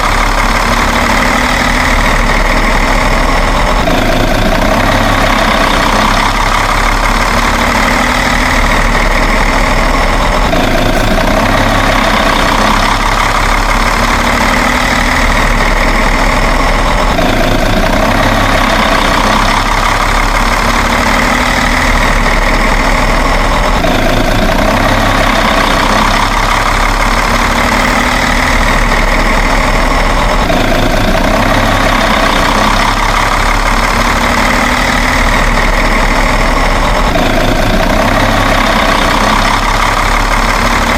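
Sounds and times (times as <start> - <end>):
truck engine idling: 0.0 - 40.9.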